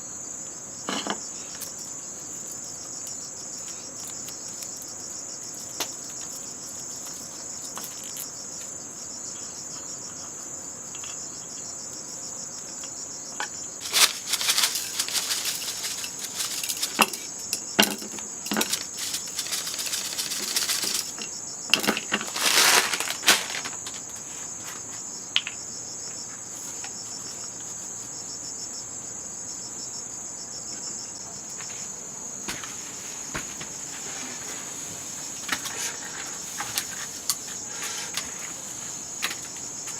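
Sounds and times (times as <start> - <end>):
high-pitched insect chorus: 0.0 - 39.9
loud rustling and crackling: 13.8 - 21.2, 21.8 - 24.1.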